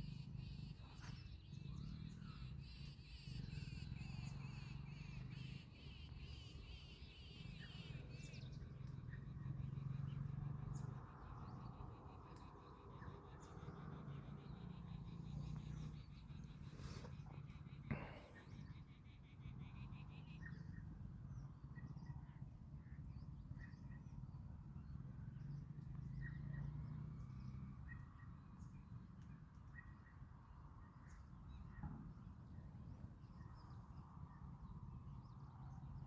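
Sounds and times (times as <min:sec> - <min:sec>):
birds chirping: 0:00.0 - 0:20.8.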